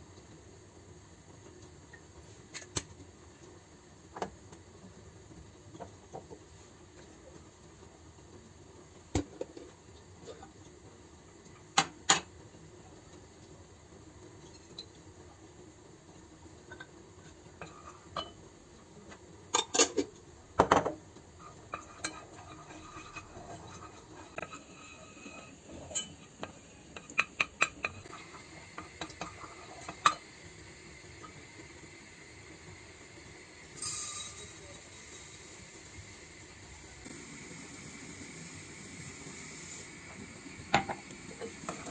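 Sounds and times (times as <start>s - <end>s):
dishes and cutlery clinking: 17.6s - 18.4s, 19.5s - 21.0s, 21.7s - 28.1s.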